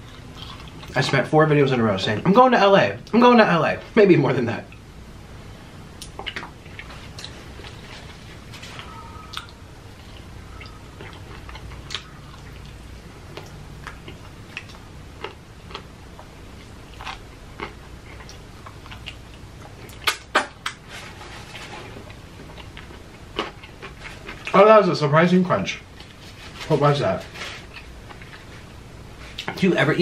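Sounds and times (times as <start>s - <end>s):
mouth chewing: 8.7s - 20.8s, 21.5s - 24.6s.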